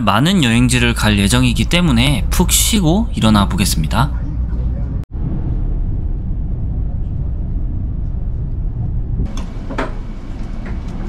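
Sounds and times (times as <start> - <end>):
train rumbling from inside: 0.0 - 11.0
sharp knocks: 9.3 - 10.8.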